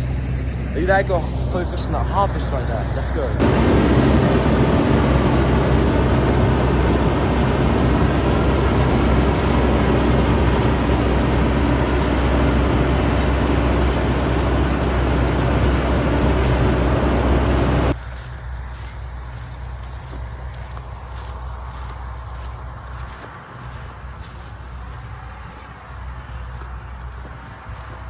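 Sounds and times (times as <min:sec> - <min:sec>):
diesel engine hum: 0:00.0 - 0:28.0
clatter of threshing machinery: 0:03.4 - 0:18.4.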